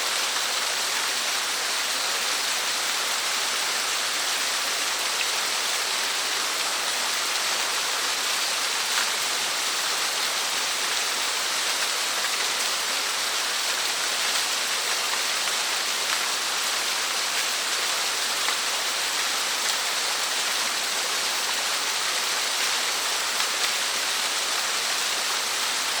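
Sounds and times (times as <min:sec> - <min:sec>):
small waterfall splashing: 0:00.0 - 0:26.0.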